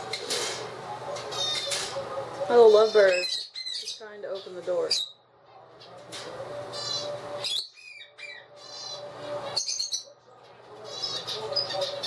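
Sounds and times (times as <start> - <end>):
parrot squawking: 1.2 - 1.9, 2.6 - 5.2, 6.6 - 10.2, 10.8 - 12.0
parrot high chirps: 6.7 - 10.1.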